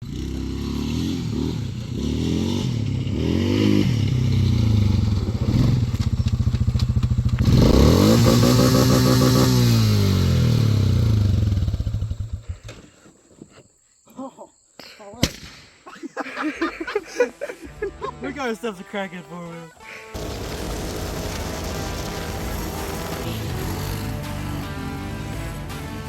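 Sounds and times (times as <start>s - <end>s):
quad bike engine revving: 0.0s - 12.8s, 20.2s - 26.0s.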